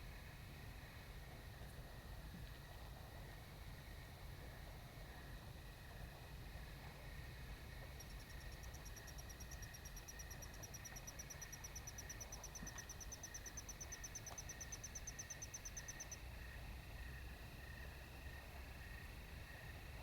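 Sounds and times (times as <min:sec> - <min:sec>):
faint insect chorus: 0:00.0 - 0:20.0
insect high-pitched pulses: 0:08.0 - 0:17.9.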